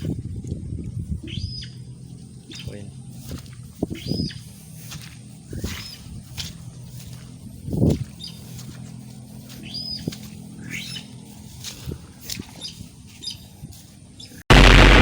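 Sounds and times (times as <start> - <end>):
bird chirping: 1.2 - 2.9.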